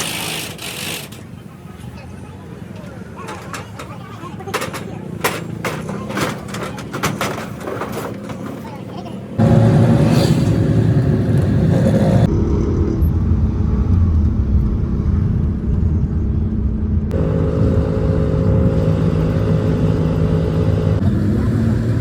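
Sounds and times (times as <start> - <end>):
vehicle engine humming: 8.9 - 22.0.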